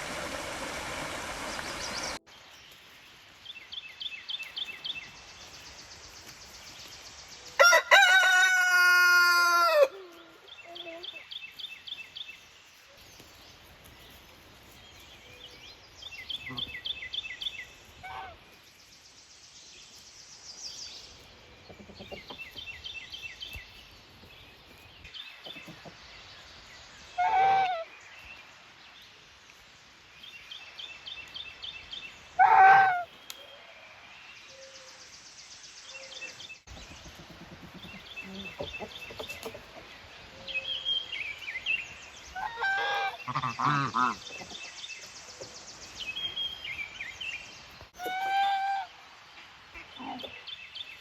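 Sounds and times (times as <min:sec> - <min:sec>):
goose honking: 0:32.4 - 0:33.1, 0:42.4 - 0:44.2.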